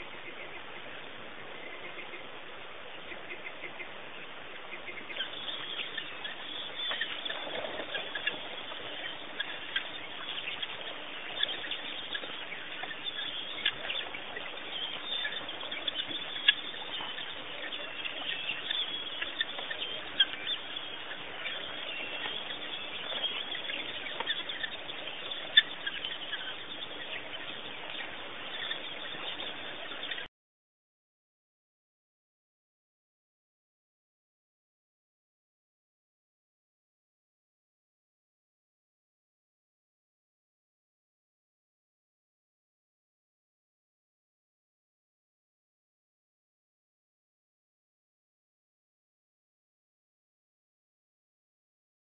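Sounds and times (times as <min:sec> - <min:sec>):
faint steady hum: 0:00.0 - 0:30.3
small birds chirping: 0:00.0 - 0:30.3.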